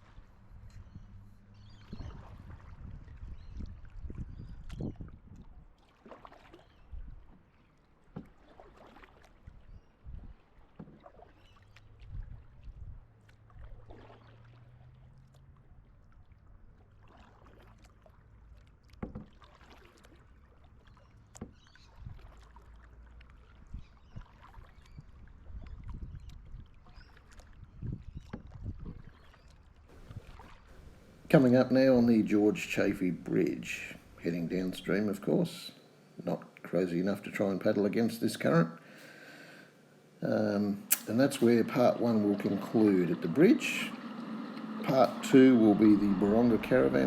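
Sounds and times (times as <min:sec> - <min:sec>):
kayak paddle splashing: 0:05.7 - 0:47.0
faint low hum: 0:29.9 - 0:47.0.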